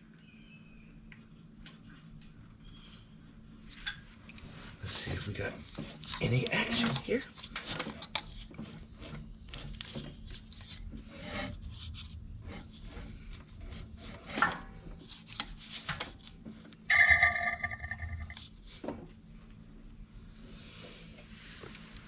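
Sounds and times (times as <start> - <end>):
electronic tone: 16.9 - 18.4.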